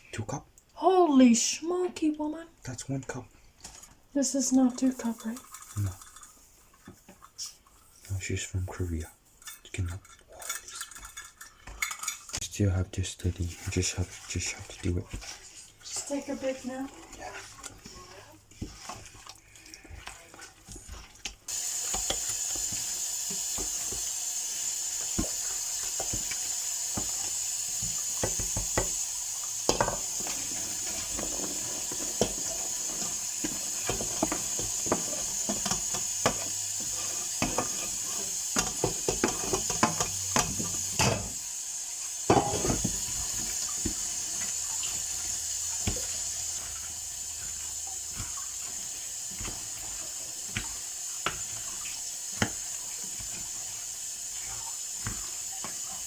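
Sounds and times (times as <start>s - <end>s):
tap water running: 0.1s - 56.0s
dishes and utensils clinking: 9.4s - 12.5s, 29.6s - 41.4s, 42.3s - 45.0s.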